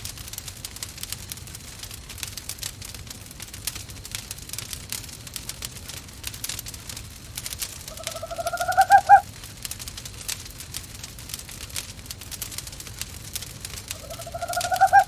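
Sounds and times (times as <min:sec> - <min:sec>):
wood fire crackling: 0:00.0 - 0:15.0
owl calling: 0:07.9 - 0:09.2, 0:14.0 - 0:15.0.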